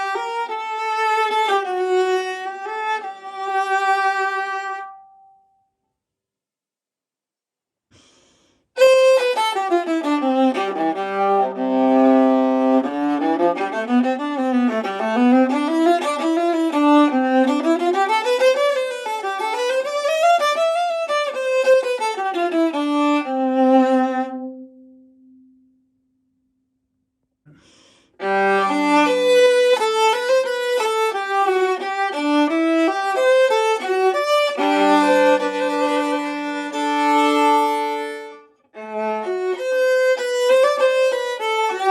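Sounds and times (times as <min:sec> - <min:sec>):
solo viola bowed runs: 0:00.0 - 0:05.3, 0:08.8 - 0:25.5, 0:28.2 - 0:41.9.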